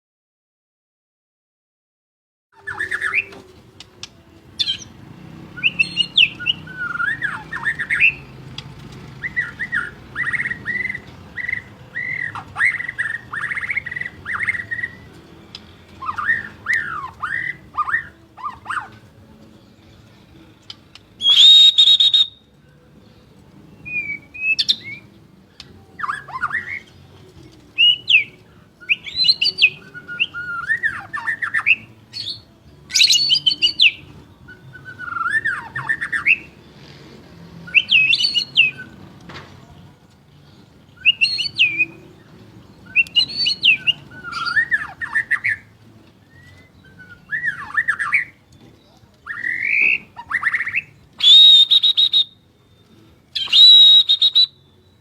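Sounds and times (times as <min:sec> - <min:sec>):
bird singing whistled phrases: 0:02.6 - 0:03.4, 0:05.6 - 0:08.3, 0:09.2 - 0:15.1, 0:16.0 - 0:19.0, 0:21.2 - 0:22.5, 0:23.8 - 0:25.2, 0:25.9 - 0:27.0, 0:27.8 - 0:36.6, 0:37.6 - 0:39.0, 0:41.0 - 0:48.4, 0:49.2 - 0:55.0.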